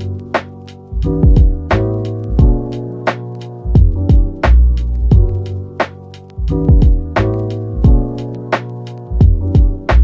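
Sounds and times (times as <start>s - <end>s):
lo-fi instrumental music: 0.0s - 10.0s
kick and snare drum beat: 0.4s - 2.7s, 3.8s - 8.1s, 9.2s - 10.0s.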